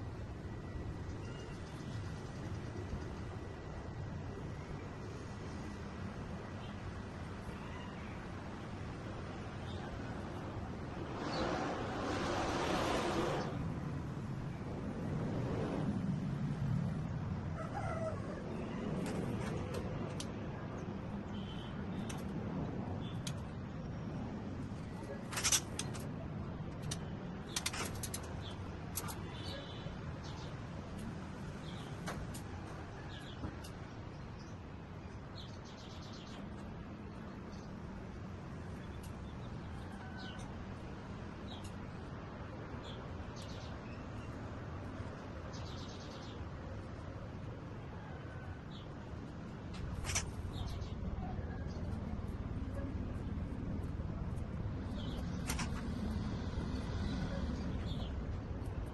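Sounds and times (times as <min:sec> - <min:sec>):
bird chirps and clicks: 0:19.0 - 0:22.4, 0:23.0 - 0:24.0, 0:25.0 - 0:36.7, 0:38.8 - 0:40.6, 0:41.4 - 0:42.1, 0:42.8 - 0:44.4, 0:49.7 - 0:58.9.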